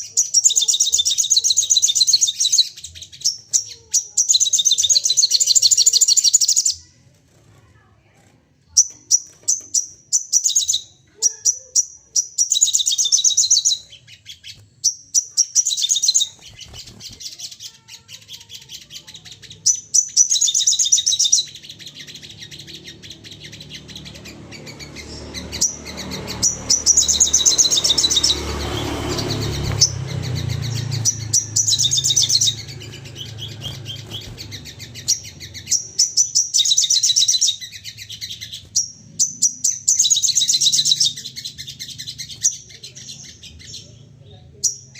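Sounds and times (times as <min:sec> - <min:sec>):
bird sharp high chirps: 0:00.0 - 0:06.9, 0:08.7 - 0:44.9.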